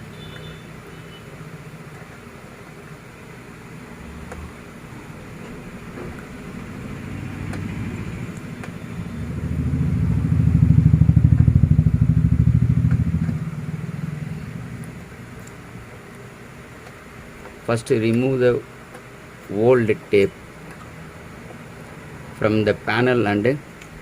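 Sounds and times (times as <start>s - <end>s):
passing motor vehicle engine: 3.6s - 16.0s.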